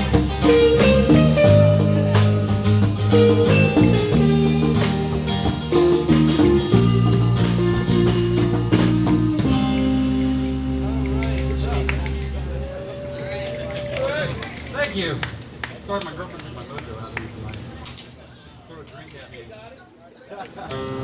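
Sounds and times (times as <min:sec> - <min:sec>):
live blues band playing: 0:00.0 - 0:14.0.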